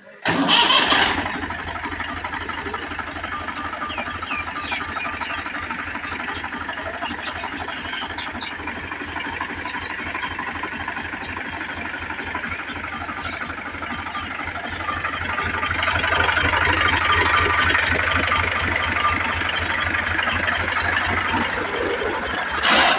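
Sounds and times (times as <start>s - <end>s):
tractor diesel engine idling: 0.0s - 22.9s.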